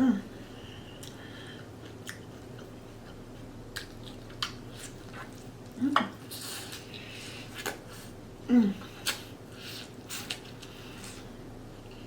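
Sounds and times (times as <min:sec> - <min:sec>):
person humming mm: 0:08.5 - 0:09.2.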